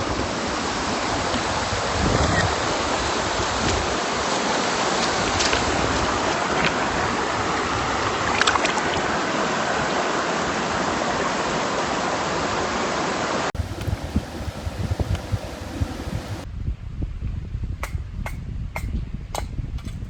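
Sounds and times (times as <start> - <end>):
stream water rushing: 2.6 - 5.4, 6.1 - 16.4
faint clicks: 13.6 - 16.4.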